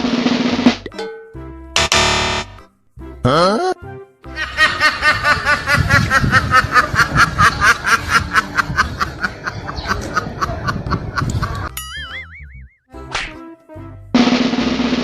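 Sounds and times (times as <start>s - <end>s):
rapid rhythmic laughter: 4.3s - 11.7s.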